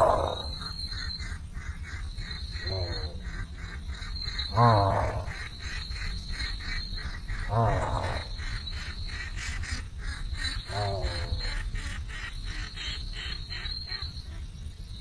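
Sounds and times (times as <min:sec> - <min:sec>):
low harsh animal call: 0:00.0 - 0:00.8, 0:02.5 - 0:03.8, 0:04.5 - 0:05.5, 0:07.4 - 0:08.6, 0:10.6 - 0:11.6.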